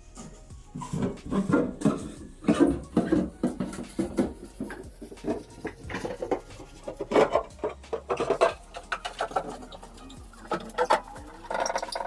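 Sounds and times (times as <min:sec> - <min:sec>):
dishes and containers clattering: 0:00.2 - 0:12.0.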